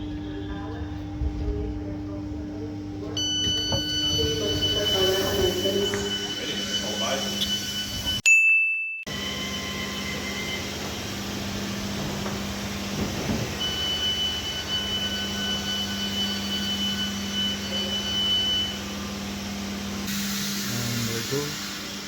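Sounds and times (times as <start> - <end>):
electric train hum: 0.0 - 8.2
high-pitched whine: 3.2 - 8.2
short beep: 3.2 - 9.0.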